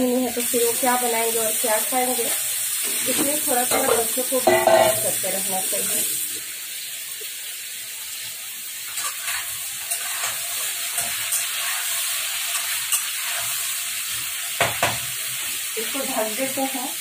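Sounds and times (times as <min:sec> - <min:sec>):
food sizzling in a pan: 0:00.0 - 0:17.0
spatula scraping a pan: 0:08.9 - 0:14.2.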